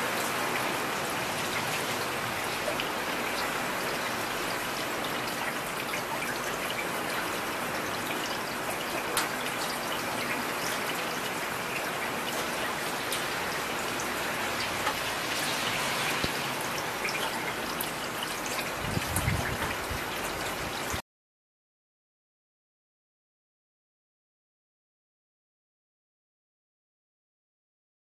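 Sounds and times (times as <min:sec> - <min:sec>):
steady rain: 0:00.0 - 0:21.0
raindrops spattering: 0:00.1 - 0:21.0.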